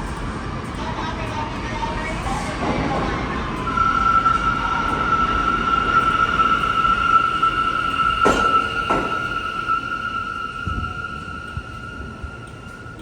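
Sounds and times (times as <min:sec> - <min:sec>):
subway train running on rails: 0:00.0 - 0:13.0
high-pitched squeal: 0:02.9 - 0:13.0
sharp clunks: 0:08.2 - 0:09.5.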